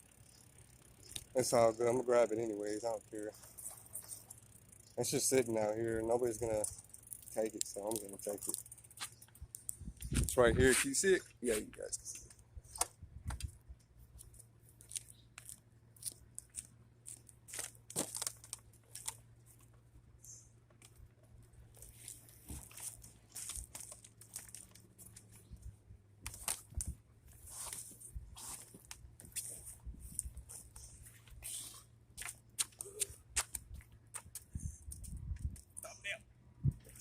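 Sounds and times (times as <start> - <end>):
rustling and crunching of handling: 14.0 - 19.8, 20.7 - 31.8.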